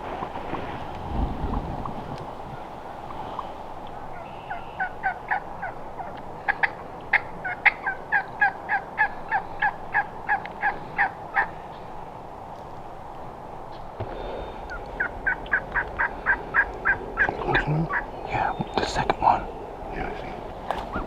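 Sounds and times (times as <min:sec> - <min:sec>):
wild turkey yelping: 0:01.5 - 0:12.0, 0:14.6 - 0:21.0.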